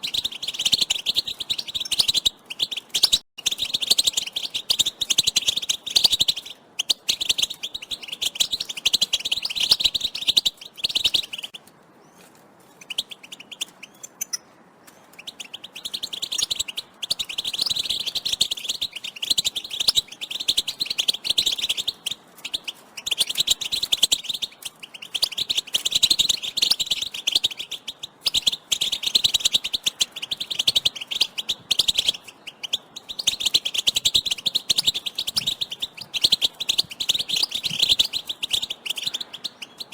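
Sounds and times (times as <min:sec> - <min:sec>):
goldfinches twittering: 0:15.2 - 0:39.9.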